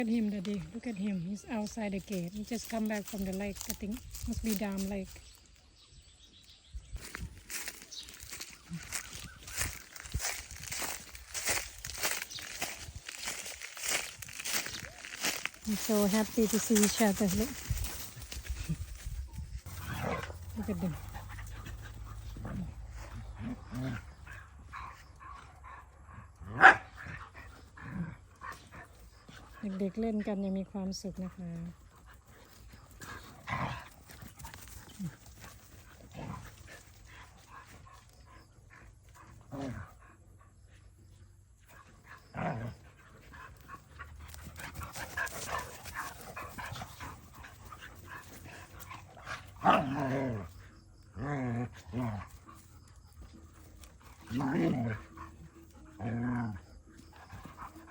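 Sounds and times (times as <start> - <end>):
dogs panting: 7.5 - 30.2, 31.1 - 51.0, 51.7 - 57.9
dog barking: 26.4 - 27.0.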